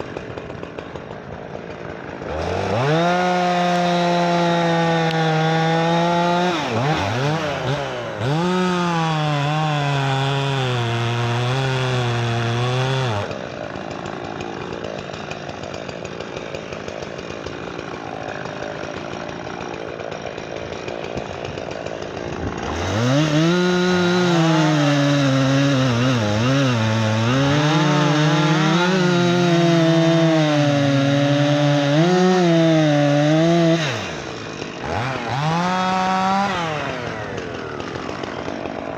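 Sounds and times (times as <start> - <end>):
chainsaw cutting firewood: 0.0 - 38.9.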